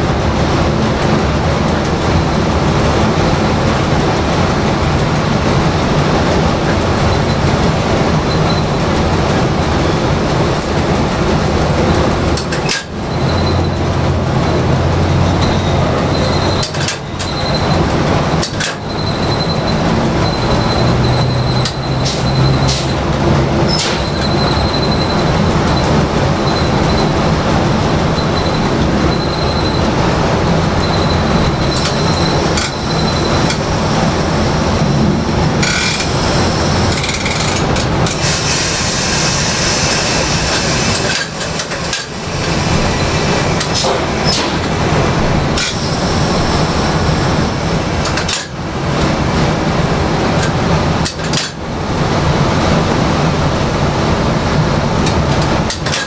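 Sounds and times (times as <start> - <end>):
train rumbling on rails: 0.0 - 56.0
clicks and knocks of wheels: 0.7 - 27.2, 36.8 - 38.2, 40.5 - 42.6, 48.0 - 49.2, 50.3 - 51.6, 55.0 - 56.0
hiss: 38.2 - 41.2.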